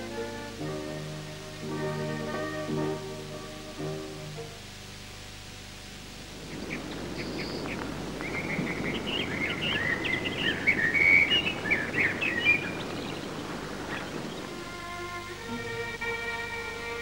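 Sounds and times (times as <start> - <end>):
steady low hiss: 0.0 - 17.0
birds chirping and warbling: 6.2 - 15.4.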